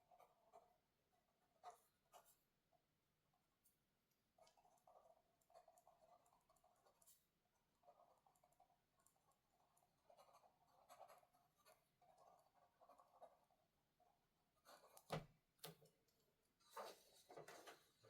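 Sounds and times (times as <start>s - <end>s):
pen scratching on paper: 0.0s - 2.4s, 4.4s - 13.7s.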